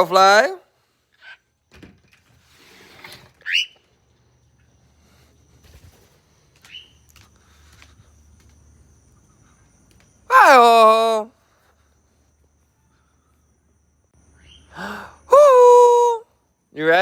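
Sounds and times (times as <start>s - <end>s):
bird chirping: 3.4s - 3.9s, 6.6s - 7.1s, 14.3s - 14.8s.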